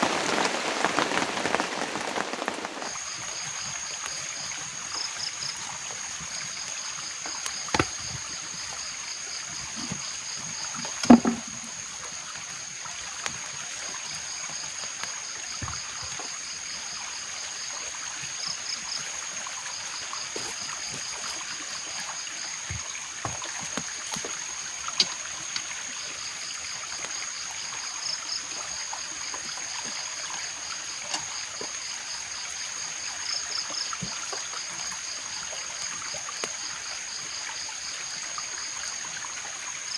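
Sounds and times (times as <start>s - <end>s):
rain and running water: 0.0s - 39.9s
sharp knocks: 11.0s - 11.7s.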